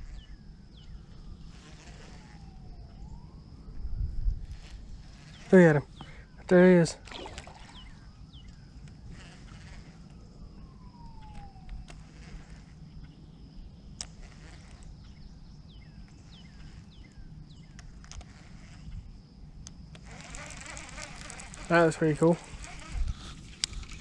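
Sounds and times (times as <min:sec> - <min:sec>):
high insect buzz: 0:00.0 - 0:24.0
long falling whistle: 0:02.2 - 0:04.4, 0:10.0 - 0:12.1.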